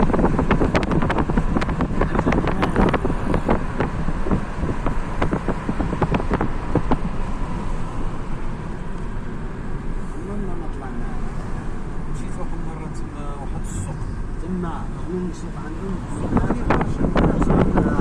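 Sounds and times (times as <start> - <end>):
wind buffeting microphone: 0.0 - 8.6, 15.3 - 18.0.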